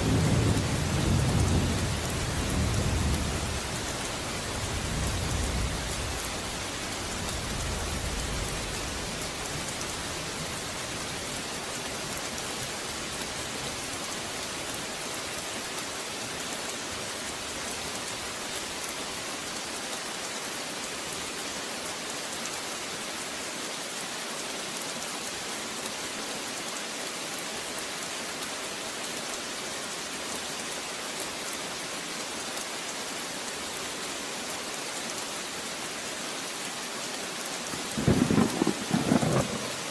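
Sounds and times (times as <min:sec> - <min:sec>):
steady rain pattering: 0:00.0 - 0:39.9
thunder rumbling: 0:37.8 - 0:39.9.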